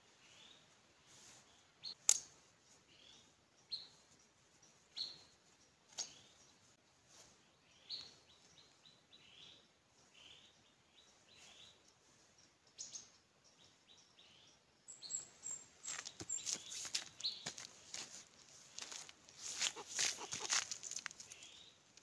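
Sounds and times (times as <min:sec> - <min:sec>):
small birds chirping: 0:00.0 - 0:22.0
scuffs and rustles on dry ground: 0:02.6 - 0:09.0, 0:15.4 - 0:22.0.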